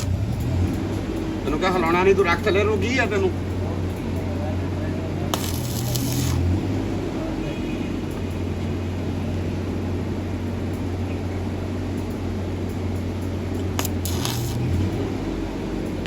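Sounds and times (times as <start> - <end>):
electric fan humming: 5.0 - 7.2, 8.4 - 16.0.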